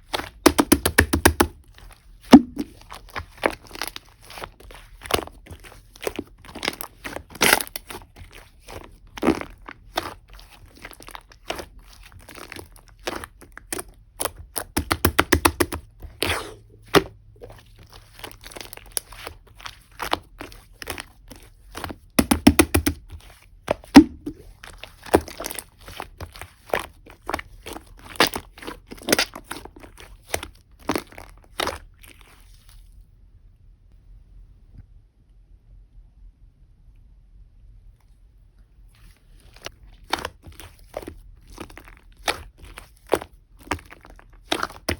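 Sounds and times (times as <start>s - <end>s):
slime squeezed clicking and popping: 0.1s - 1.6s, 2.3s - 2.8s, 13.0s - 17.1s, 22.2s - 23.1s, 23.8s - 24.4s.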